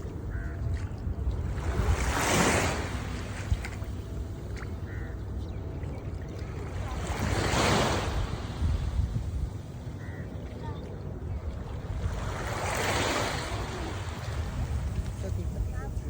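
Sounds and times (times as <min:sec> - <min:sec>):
wind rumble on microphone: 0:00.0 - 0:16.0
waves washing in: 0:01.1 - 0:16.0.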